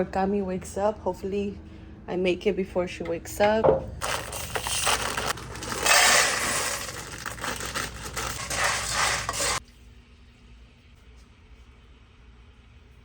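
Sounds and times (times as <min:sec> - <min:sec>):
kitchen scraping and rubbing: 0:04.0 - 0:09.6.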